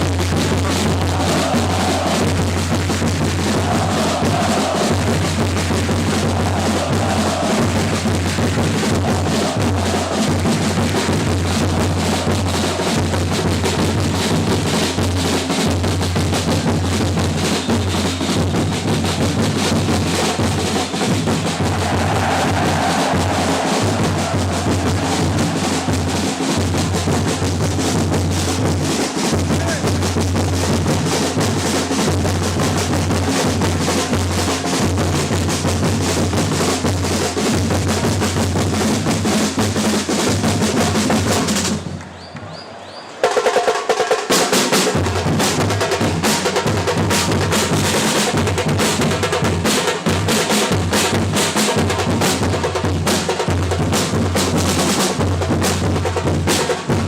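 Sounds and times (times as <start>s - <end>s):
bass and snare drums rhythm: 0.0s - 42.2s, 43.1s - 57.0s
crowd singing: 0.4s - 13.2s, 21.1s - 27.6s.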